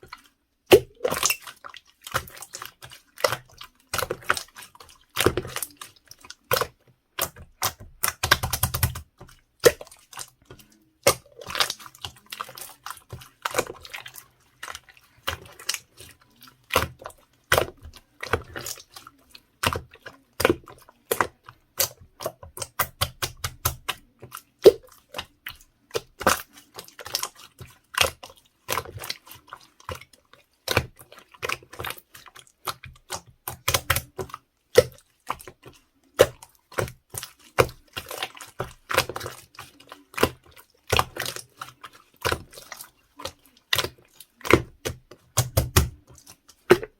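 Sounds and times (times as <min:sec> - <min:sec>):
slime clicking and popping: 0:00.7 - 0:01.5, 0:05.1 - 0:12.7, 0:19.6 - 0:27.3, 0:32.6 - 0:35.6, 0:36.2 - 0:41.5, 0:43.7 - 0:46.9.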